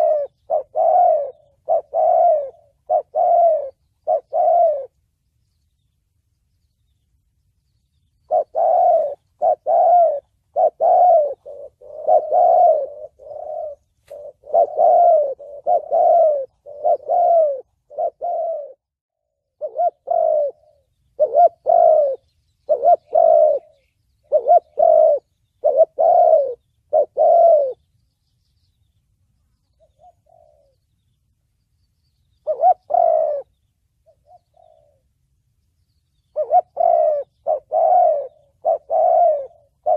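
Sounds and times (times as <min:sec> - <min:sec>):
dove cooing: 0:00.0 - 0:05.0, 0:08.2 - 0:27.9, 0:29.7 - 0:30.9, 0:32.3 - 0:35.2, 0:36.2 - 0:39.9.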